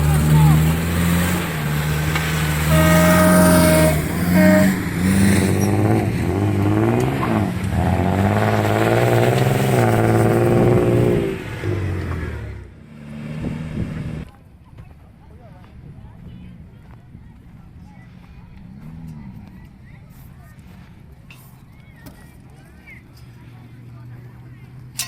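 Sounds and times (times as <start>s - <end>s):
engine revving: 0.0s - 14.3s
steady high tone: 2.6s - 5.9s.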